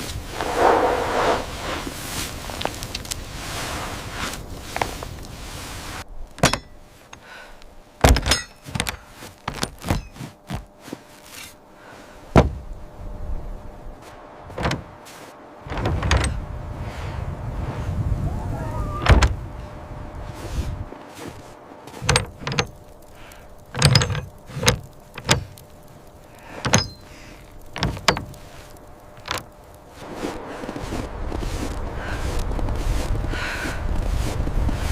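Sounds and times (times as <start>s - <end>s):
low rumble: 0.2s - 4.5s
knocks and clunks: 6.4s - 6.7s, 8.0s - 10.6s, 14.5s - 15.0s, 15.6s - 16.4s, 21.9s - 22.8s, 23.7s - 25.6s, 26.6s - 27.0s, 27.7s - 28.4s.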